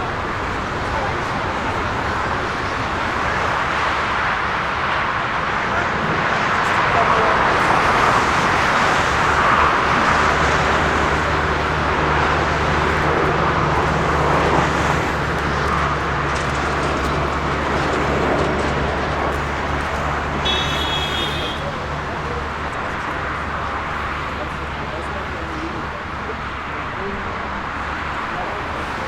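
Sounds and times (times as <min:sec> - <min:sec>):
engine and traffic noise: 0:00.0 - 0:29.0.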